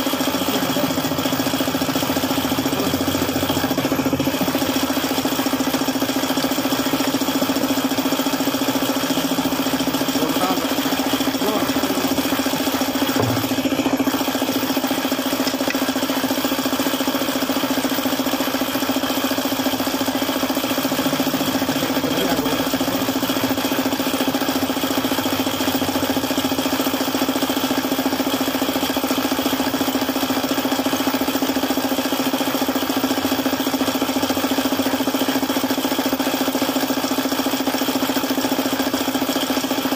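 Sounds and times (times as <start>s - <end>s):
engine idling with a knock: 11.2s - 14.8s.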